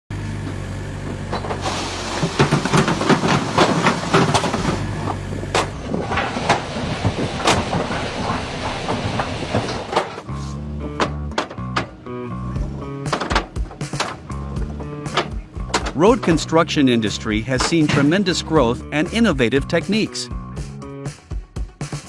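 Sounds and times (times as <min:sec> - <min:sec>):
construction machinery humming: 0:00.1 - 0:20.4
sharp clacks and knocks: 0:05.5 - 0:10.3, 0:12.6 - 0:16.4.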